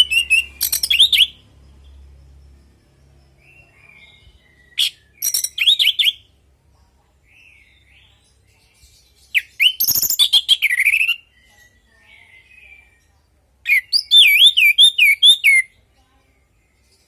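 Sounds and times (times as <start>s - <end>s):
thrush singing whistled phrases: 0.0s - 1.4s, 4.6s - 6.3s, 9.4s - 11.5s, 13.7s - 15.7s
bursts of rapid varied bird notes: 0.0s - 17.0s.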